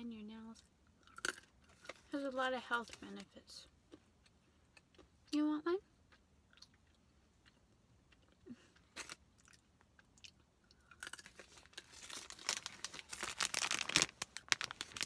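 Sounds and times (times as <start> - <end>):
almond crunching: 6.5 - 15.0
plastic wrapper crinkling: 11.2 - 15.0.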